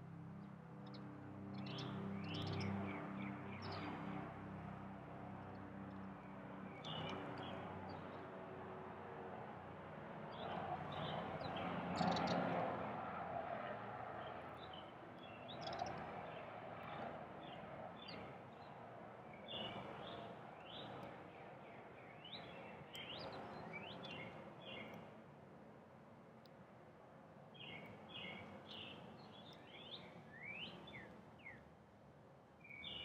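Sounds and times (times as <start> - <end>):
small birds chirping: 6.8 - 7.6, 10.3 - 12.6, 14.5 - 16.5, 19.3 - 25.1, 27.6 - 31.7, 32.6 - 33.0.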